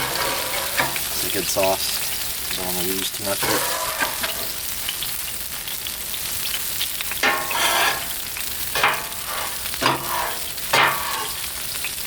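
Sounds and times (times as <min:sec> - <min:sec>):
metal scraping griddle: 0:00.0 - 0:01.4, 0:03.4 - 0:04.7, 0:07.2 - 0:11.7
food sizzling on griddle: 0:00.0 - 0:12.0.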